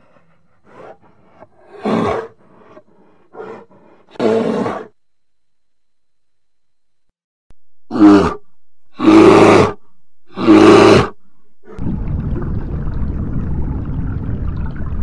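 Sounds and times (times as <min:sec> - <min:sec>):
bear roaring: 0:00.6 - 0:05.0, 0:07.9 - 0:11.8
low underwater rumble: 0:11.8 - 0:15.0.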